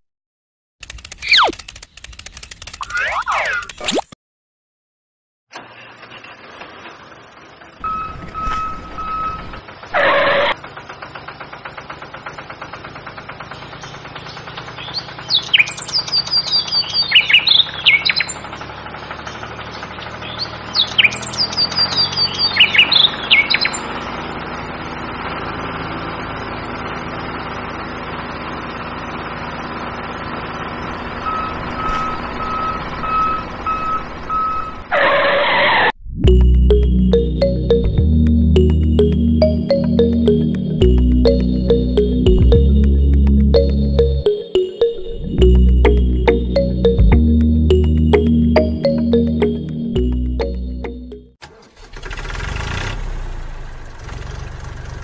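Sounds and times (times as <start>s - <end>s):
small motor running: 0.8s - 3.8s
bird chirps: 13.5s - 18.4s, 19.3s - 24.0s.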